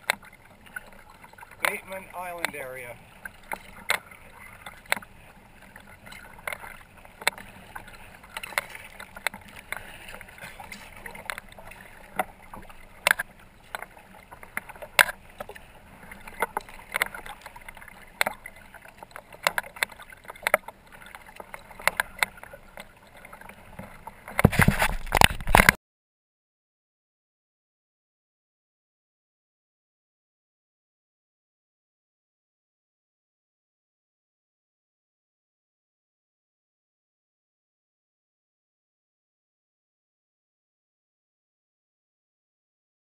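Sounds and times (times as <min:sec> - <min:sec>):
water trickling: 0:00.0 - 0:25.6
kayak paddle splashing in water: 0:00.0 - 0:25.8.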